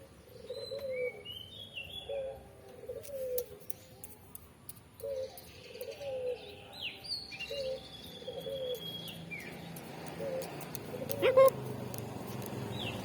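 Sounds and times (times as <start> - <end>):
bird cooing: 0.3 - 3.4, 5.0 - 6.5, 7.5 - 8.8, 10.2 - 11.6.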